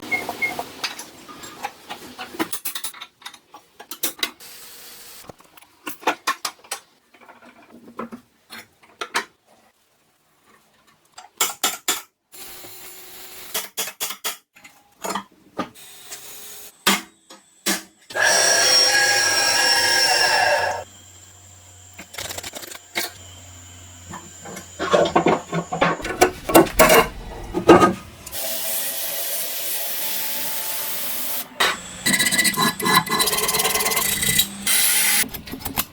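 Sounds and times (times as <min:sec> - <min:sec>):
small power tool running: 0:18.1 - 0:27.4, 0:28.2 - 0:35.3.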